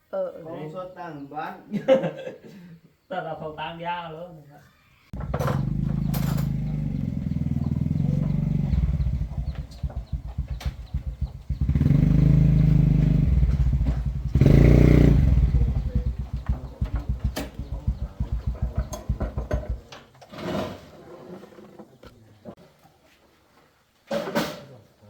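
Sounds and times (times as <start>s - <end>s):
motorcycle engine revving: 5.2s - 19.9s.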